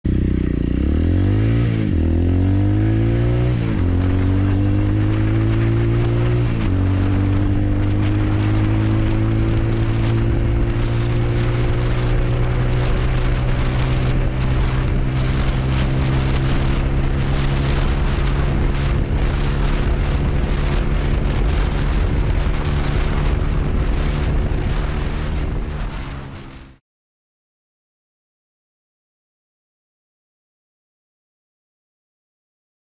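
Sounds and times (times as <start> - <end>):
motorcycle engine revving at full throttle: 0.0 - 26.8
wind buffeting: 1.0 - 26.8.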